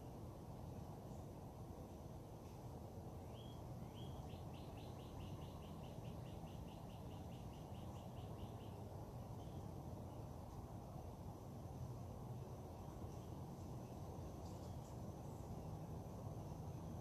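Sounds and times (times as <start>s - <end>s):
low background hum: 0.0s - 17.0s
songbird singing: 0.0s - 17.0s.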